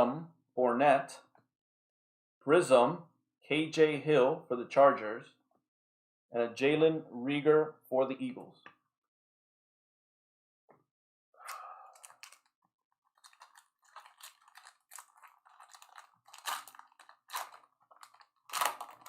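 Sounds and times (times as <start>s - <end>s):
plastic packaging crinkling: 11.5s - 19.0s.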